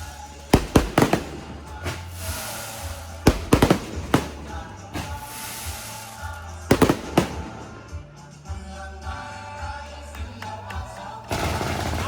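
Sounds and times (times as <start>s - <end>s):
fireworks bangs: 0.0s - 8.2s
music playing: 0.0s - 12.0s.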